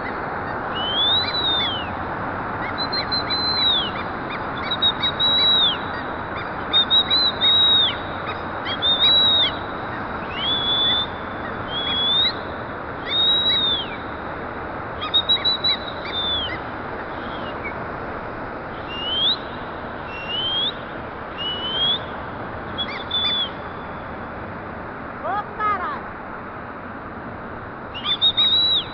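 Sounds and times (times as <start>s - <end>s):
parrots calling: 0.0s - 14.2s, 15.0s - 17.8s, 22.7s - 23.8s, 28.0s - 28.9s.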